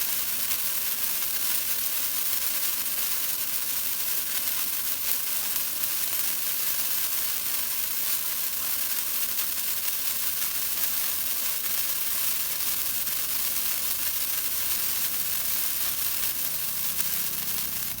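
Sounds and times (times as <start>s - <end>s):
firework hissing: 0.0s - 18.0s.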